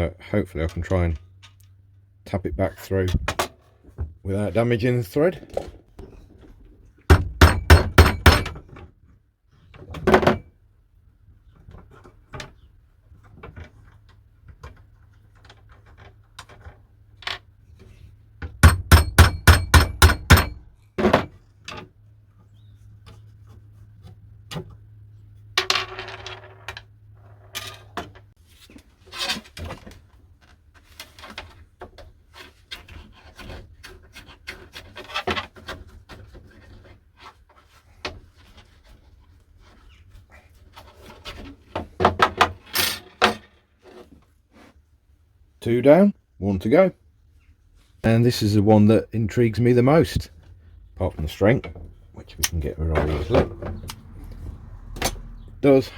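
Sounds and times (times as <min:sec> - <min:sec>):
hammer striking nut: 0:07.1 - 0:08.6, 0:18.6 - 0:20.6.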